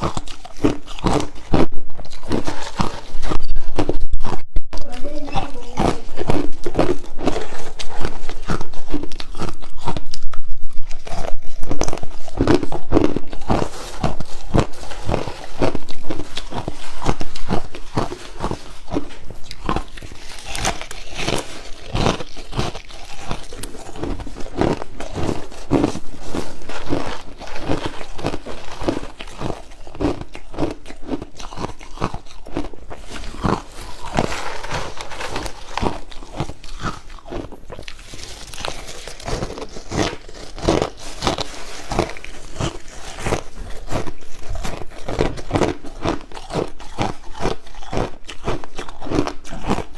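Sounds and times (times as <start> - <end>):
crushed ice being chewed: 0.0 - 49.9.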